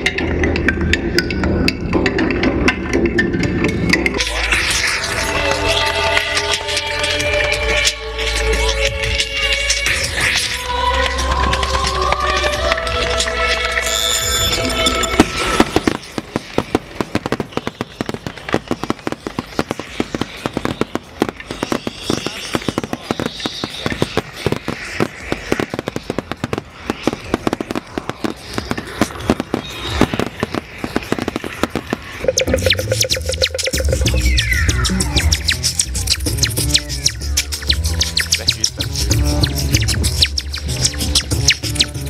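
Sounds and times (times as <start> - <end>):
music: 0.0 - 16.0, 32.2 - 42.0
fireworks crackling and popping: 0.0 - 42.0.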